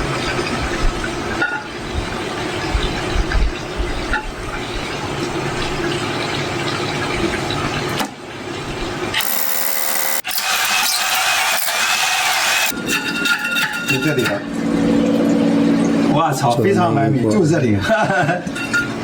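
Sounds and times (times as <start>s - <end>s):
power tool on concrete: 9.2s - 12.8s.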